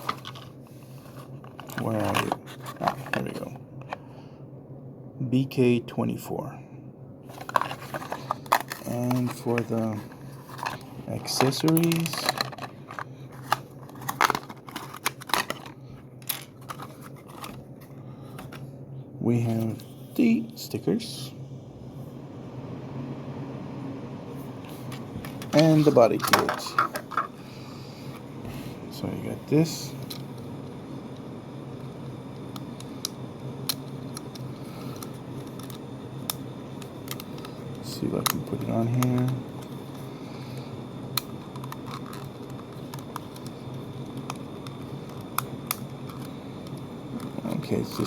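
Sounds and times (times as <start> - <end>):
plastic parts clicking and crinkling: 0.0 - 4.0, 7.3 - 17.7, 25.3 - 27.4, 32.5 - 37.5, 38.2 - 40.6, 41.2 - 48.0
steady low hum: 0.0 - 48.0
plastic parts clicking and tapping: 10.5 - 17.6.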